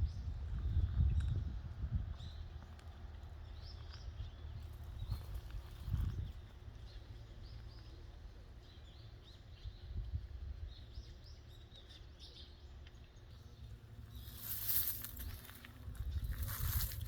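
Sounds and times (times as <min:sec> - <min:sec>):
small birds chirping: 0:00.0 - 0:17.0
steady low rumble: 0:13.4 - 0:17.0.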